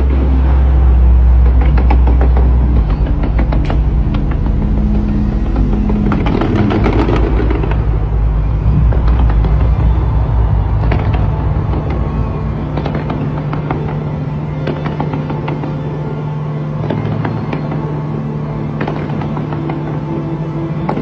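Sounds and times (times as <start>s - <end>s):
continuous low rumble: 0.0s - 21.0s
fireworks cracks and bangs: 0.4s - 16.1s.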